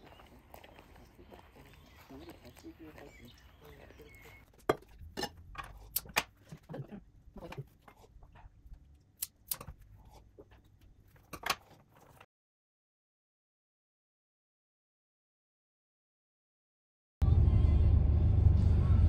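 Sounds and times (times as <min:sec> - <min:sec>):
scissors snipping stems: 0:09.2 - 0:09.8.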